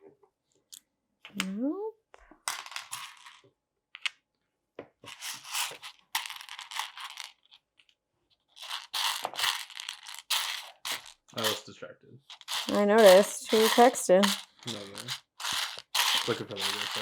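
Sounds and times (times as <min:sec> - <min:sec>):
plastic pieces rattling: 0:02.5 - 0:03.4, 0:05.1 - 0:07.6, 0:08.6 - 0:11.6, 0:12.3 - 0:17.0.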